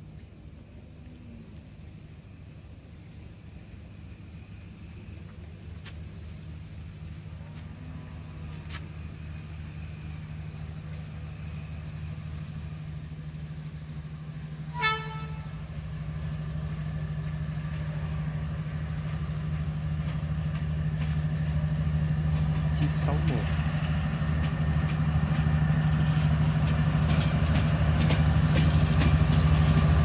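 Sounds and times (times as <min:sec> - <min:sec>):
locomotive engine rumble: 0:00.0 - 0:30.0
train horn toot: 0:14.7 - 0:15.7.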